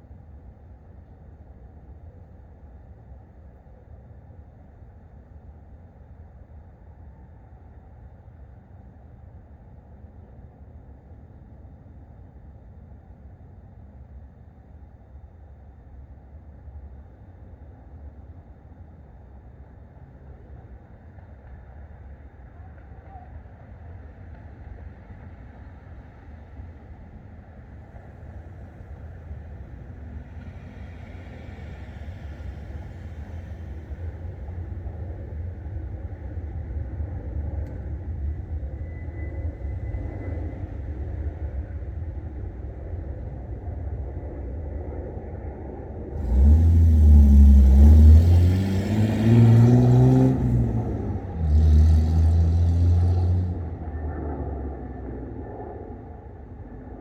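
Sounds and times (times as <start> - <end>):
low steady rumble: 24.2 - 57.0
vehicle engine revving: 46.2 - 55.2.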